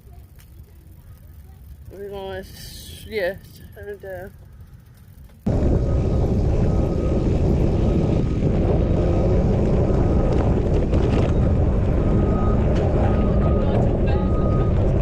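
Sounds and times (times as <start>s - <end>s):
wind buffeting microphone: 5.4s - 15.0s.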